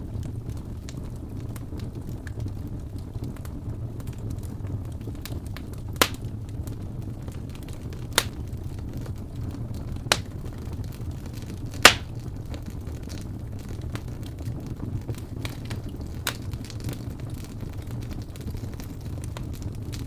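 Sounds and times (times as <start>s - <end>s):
fire crackling in a fireplace: 0.0s - 20.0s
loud sharp pops of fire: 4.0s - 20.0s.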